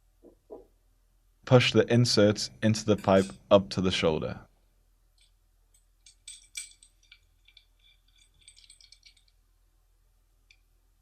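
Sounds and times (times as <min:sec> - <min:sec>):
small clicks and light rattles: 0:05.2 - 0:09.4, 0:10.4 - 0:10.7.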